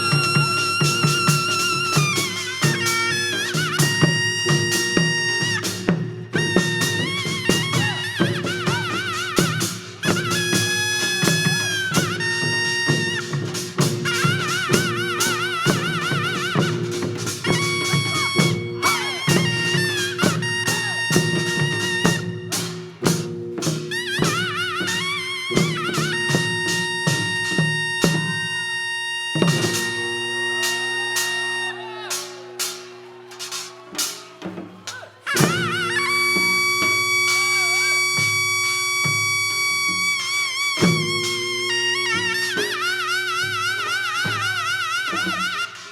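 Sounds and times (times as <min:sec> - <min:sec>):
drum strokes: 0:00.0 - 0:45.9
reedy wind instrument: 0:00.0 - 0:45.9
high wailing melody: 0:14.2 - 0:22.3, 0:24.1 - 0:33.5, 0:35.3 - 0:45.8.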